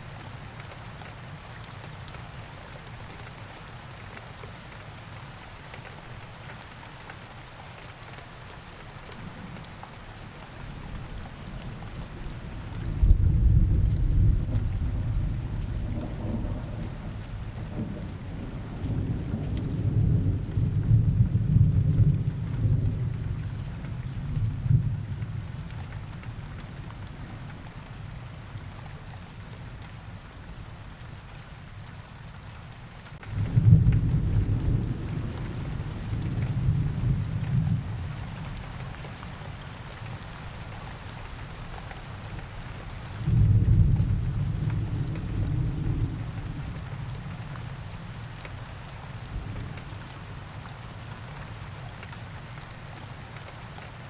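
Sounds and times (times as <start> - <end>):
rain: 0.0 - 54.0
rolling thunder: 12.0 - 23.5, 33.2 - 38.1, 43.3 - 47.2.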